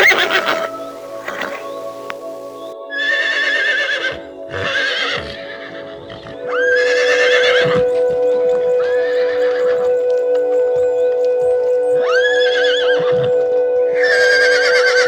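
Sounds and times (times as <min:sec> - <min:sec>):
horse whinnying: 0:00.0 - 0:08.0, 0:12.1 - 0:13.4, 0:14.0 - 0:15.0
background music with held tones: 0:00.0 - 0:15.0.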